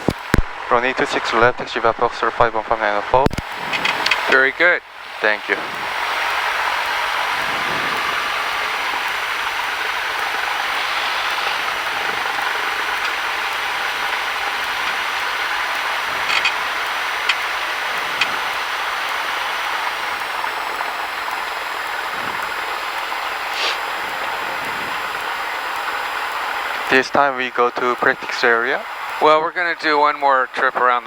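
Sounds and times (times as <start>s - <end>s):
aircraft piston engine drone: 0.0s - 31.0s.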